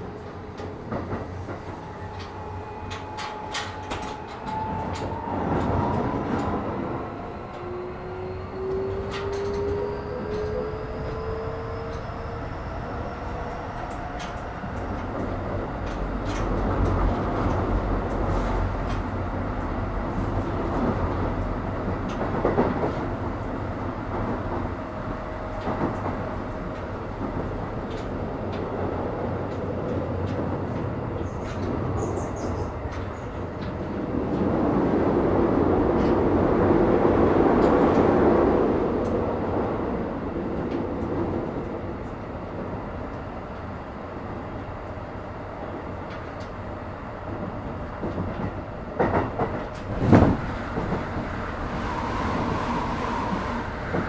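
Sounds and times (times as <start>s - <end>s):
rumble of train wheels on rail: 0.0s - 54.0s.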